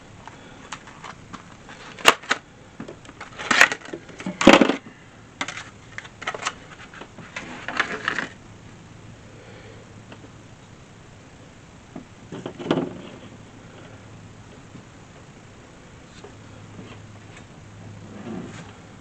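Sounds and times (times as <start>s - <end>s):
small hard parts clicking and rattling: 0.2s - 8.4s.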